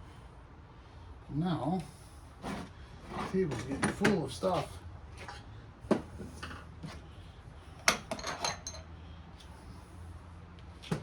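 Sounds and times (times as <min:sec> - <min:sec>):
metal parts clinking on a table: 0:07.9 - 0:08.9.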